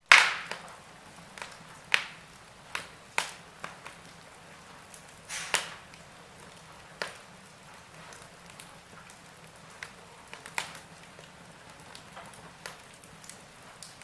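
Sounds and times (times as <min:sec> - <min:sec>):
wood fire crackling: 0:00.0 - 0:14.0
faint hiss: 0:03.4 - 0:08.7.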